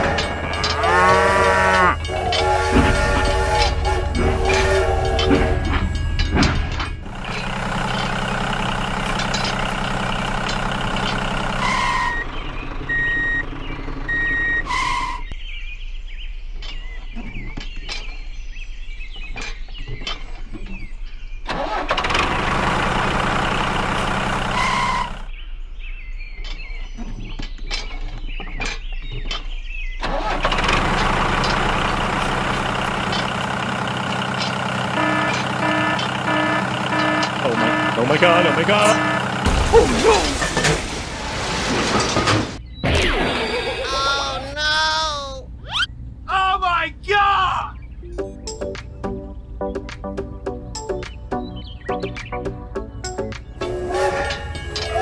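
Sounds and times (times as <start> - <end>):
rattling and clicking: 0.0 - 12.3, 26.4 - 41.2
tractor engine running: 0.0 - 15.4, 21.5 - 25.3, 30.0 - 42.7.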